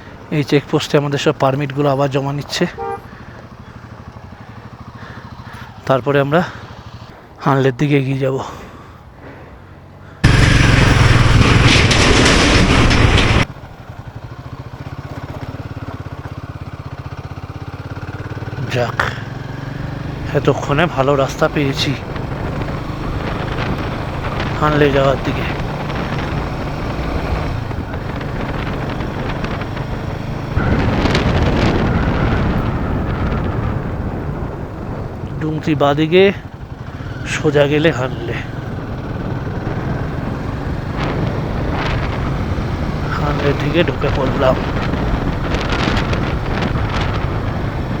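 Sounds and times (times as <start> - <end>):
rush of wind and engine: 0.0 - 48.0
motorcycle engine running: 2.8 - 7.2, 10.2 - 48.0
wind noise on microphone: 25.5 - 35.4, 38.7 - 43.2, 43.8 - 48.0.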